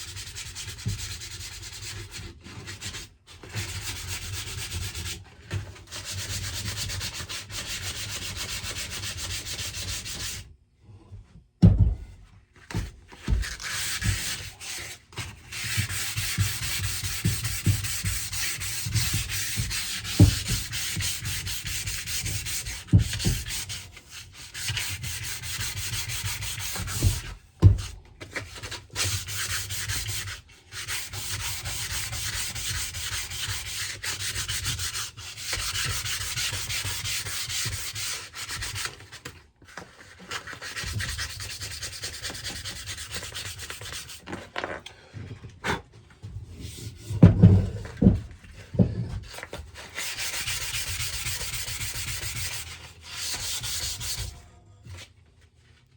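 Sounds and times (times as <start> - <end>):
dull thumps: 11.6 - 14.2, 47.0 - 49.4
rasping scraping on wood: 50.0 - 54.3.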